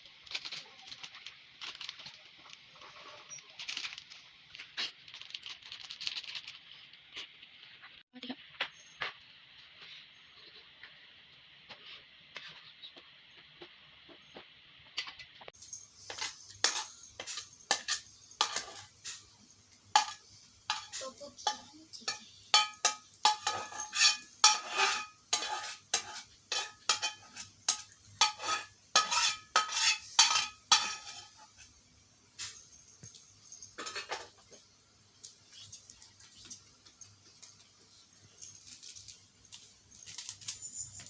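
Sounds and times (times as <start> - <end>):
dishes and cutlery clattering: 16.0 - 19.2, 20.0 - 31.7, 32.4 - 34.6.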